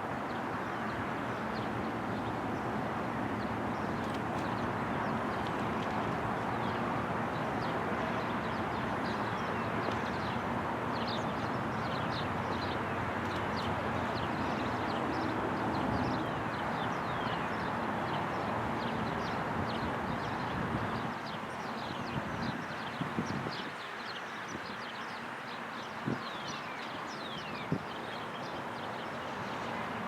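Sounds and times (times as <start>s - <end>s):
birds chirping: 21.0s - 30.0s.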